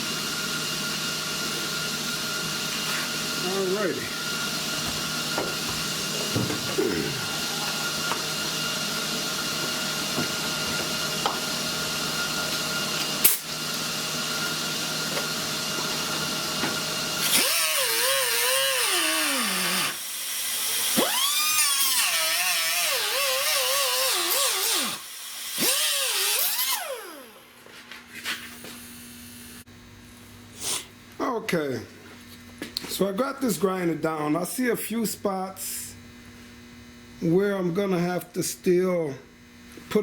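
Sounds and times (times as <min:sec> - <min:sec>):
angle grinder grinding metal: 0:01.4 - 0:27.5.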